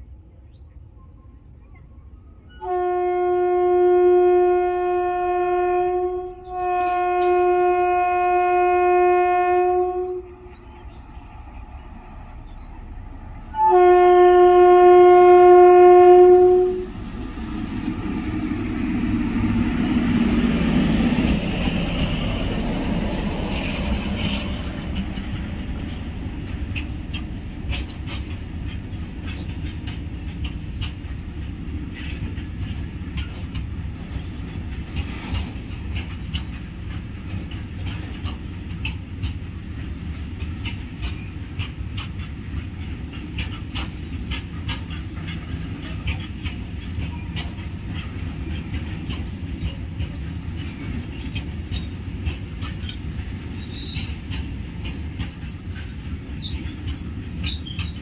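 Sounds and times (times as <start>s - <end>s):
locomotive horn blasts: 2.6s - 10.4s, 13.5s - 17.0s
freight wagons rumbling past: 16.5s - 58.0s
wheels clicking over rails: 18.4s - 58.0s.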